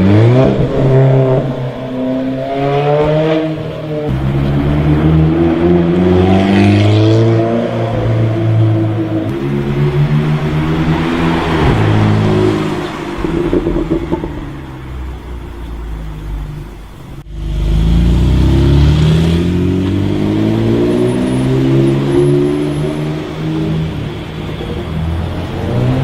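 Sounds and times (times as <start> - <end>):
sports car engine revving: 16.9 - 23.9.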